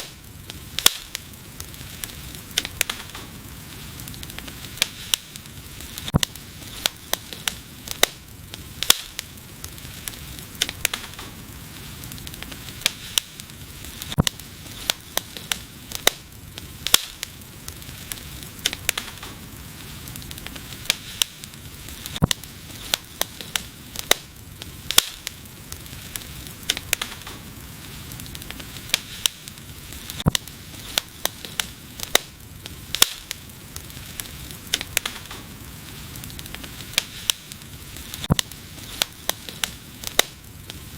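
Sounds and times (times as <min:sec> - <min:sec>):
low rumble of flames: 0:00.0 - 0:40.9
wood fire crackling and popping: 0:00.0 - 0:40.9.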